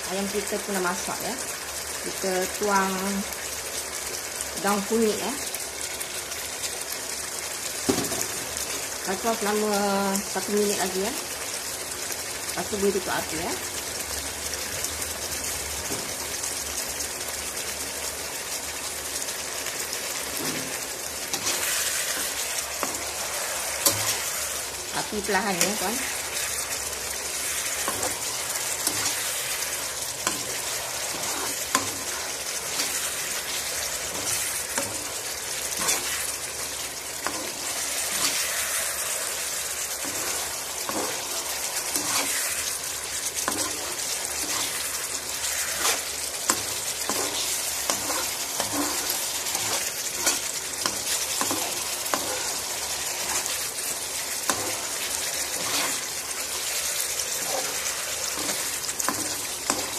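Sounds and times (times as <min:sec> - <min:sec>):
chicken sizzling in sauce: 0:00.0 - 0:59.9
spatula scraping pan: 0:20.2 - 0:59.9.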